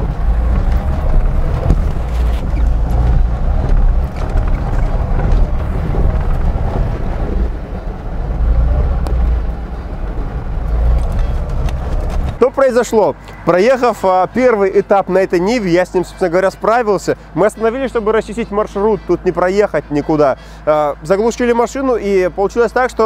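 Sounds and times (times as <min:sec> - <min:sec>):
wind rumbling on microphone: 0:00.0 - 0:12.4
car engine running: 0:00.0 - 0:13.6.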